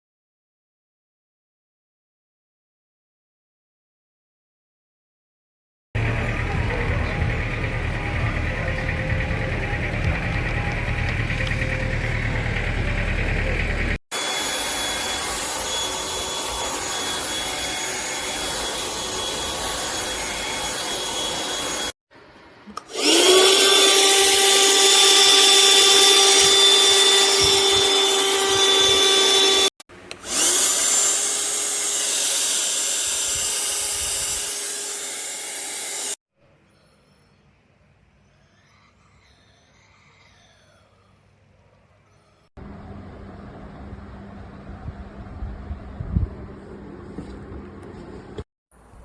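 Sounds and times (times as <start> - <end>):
handheld vacuum cleaner whine: 14.1 - 22.0, 22.8 - 36.2.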